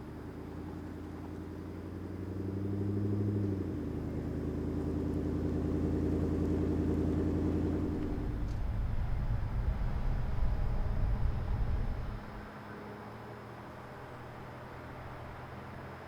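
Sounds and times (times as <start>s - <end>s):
pickup truck engine running: 3.8s - 12.4s.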